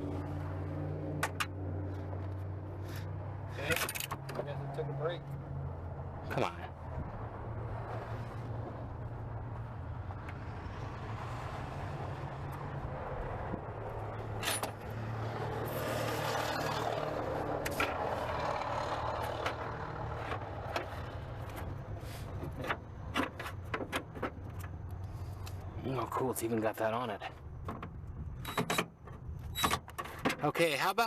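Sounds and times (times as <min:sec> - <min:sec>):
clicks and knocks of car parts: 0:19.2 - 0:25.2, 0:27.3 - 0:30.8.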